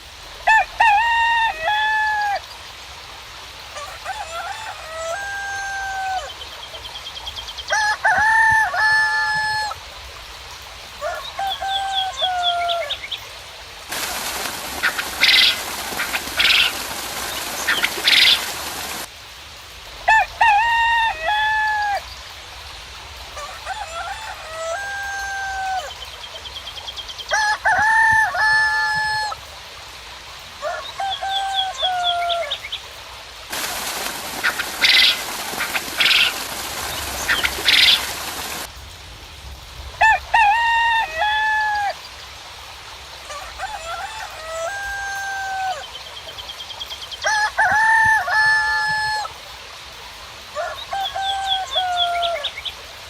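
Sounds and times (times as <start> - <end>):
roosters crowing: 0.4 - 2.4, 3.8 - 6.4, 7.7 - 9.8, 11.0 - 13.1, 13.9 - 19.1, 20.0 - 22.0, 23.3 - 26.0, 27.3 - 29.5, 30.6 - 32.6, 33.5 - 38.7, 40.0 - 42.0, 43.2 - 45.9, 47.2 - 49.4, 50.6 - 52.5
small birds chirping faintly: 9.7 - 20.2, 29.3 - 39.9
steady hiss with high bursts: 12.9 - 23.5, 32.5 - 40.0.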